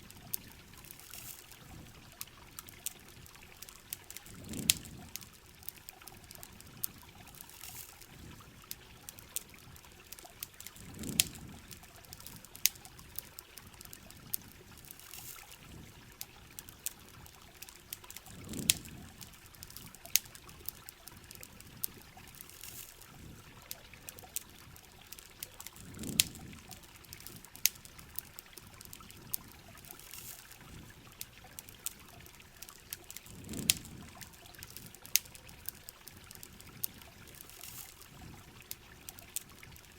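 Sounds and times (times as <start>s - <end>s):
campfire crackling and popping: 0.0s - 39.9s
heavy rain hissing: 25.8s - 26.6s.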